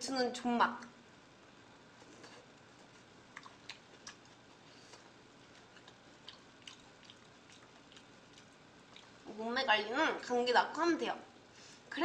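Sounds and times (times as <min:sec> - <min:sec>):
soft mouth chewing clicks: 0:02.0 - 0:09.3.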